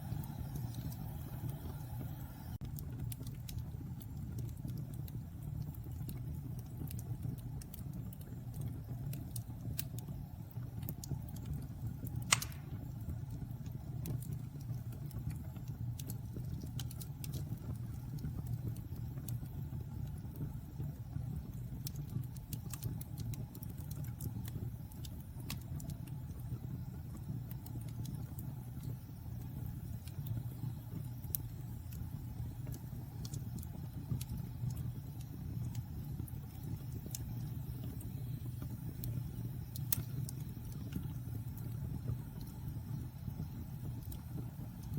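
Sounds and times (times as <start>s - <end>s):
wood fire crackling: 0.0s - 44.9s
fire pop: 10.9s - 18.8s.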